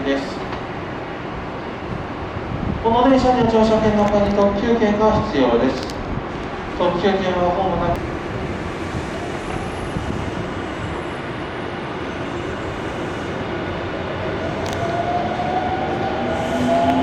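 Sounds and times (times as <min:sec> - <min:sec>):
train wheels rumbling on rail: 0:00.0 - 0:17.0
train motor whine: 0:14.3 - 0:17.0.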